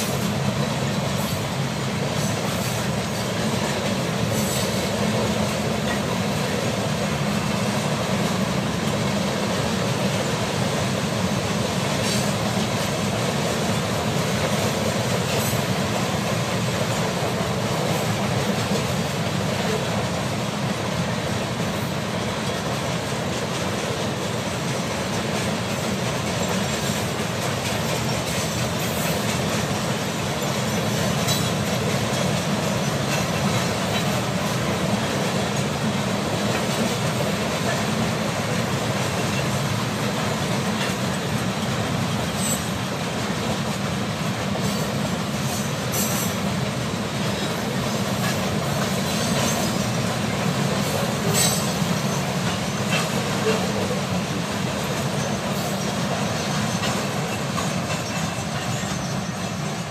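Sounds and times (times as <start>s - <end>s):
train wheels rumbling on rails: 0.0s - 59.9s
wheels squealing: 55.1s - 59.9s.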